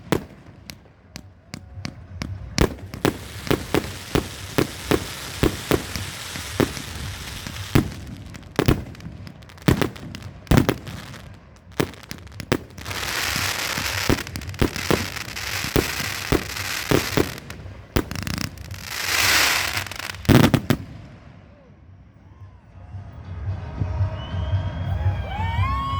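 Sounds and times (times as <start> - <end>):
firework crackling: 0.0 - 21.2
fireworks banging: 0.0 - 21.3.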